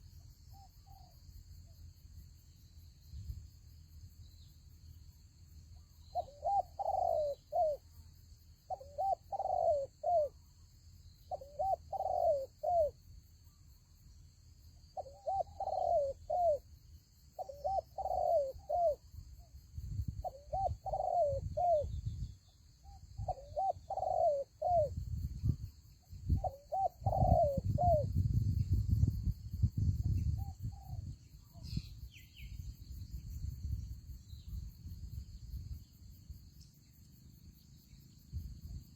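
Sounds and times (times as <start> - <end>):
dove cooing: 6.1 - 7.9, 8.7 - 10.4, 11.3 - 13.0, 15.0 - 16.6, 17.4 - 19.0, 20.2 - 22.1, 23.2 - 25.0, 26.3 - 28.2.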